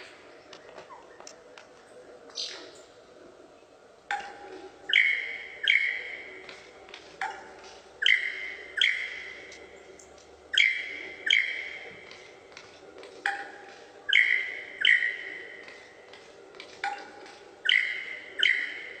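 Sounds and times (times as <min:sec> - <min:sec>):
bird calling sharp notes: 0:04.3 - 0:06.6, 0:08.0 - 0:09.5, 0:10.5 - 0:12.2, 0:14.1 - 0:15.8, 0:17.6 - 0:19.0.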